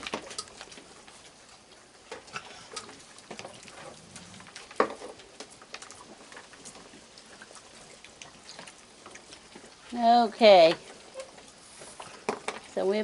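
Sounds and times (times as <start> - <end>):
raccoons chewing and clicking: 0.0 - 13.0.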